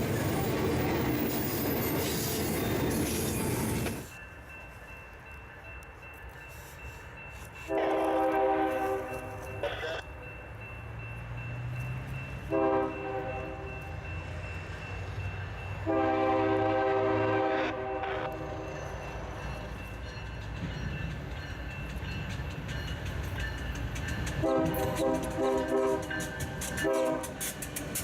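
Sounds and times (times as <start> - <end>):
passing train rumble: 0.0 - 28.0
locomotive air horn blasts: 7.6 - 10.0, 12.5 - 13.7, 15.8 - 18.7, 24.4 - 26.2, 26.8 - 27.4.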